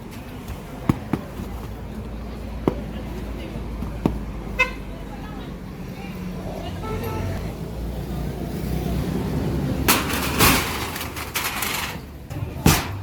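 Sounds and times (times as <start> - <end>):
demolition crashes and bangs: 9.9 - 12.0, 12.6 - 13.0.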